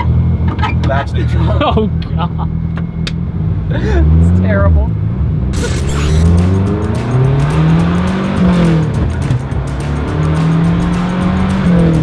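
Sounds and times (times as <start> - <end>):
rally car engine accelerating: 2.6 - 12.0.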